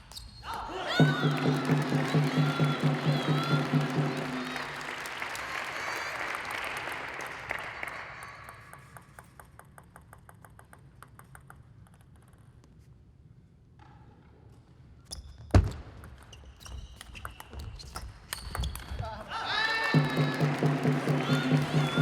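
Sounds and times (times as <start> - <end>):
crowd applauding: 0.8 - 9.0, 19.4 - 22.0.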